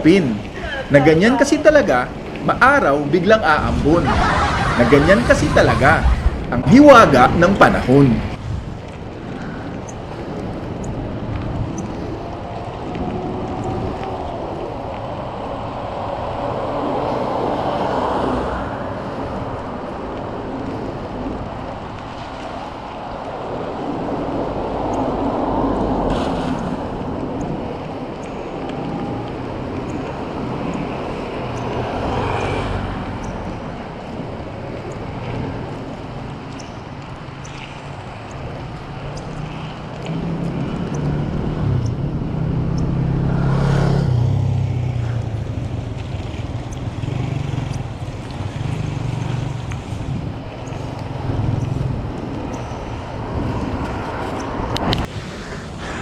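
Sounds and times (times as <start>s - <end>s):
vehicles passing: 0.0s - 56.0s
deep engine hum: 4.0s - 7.2s.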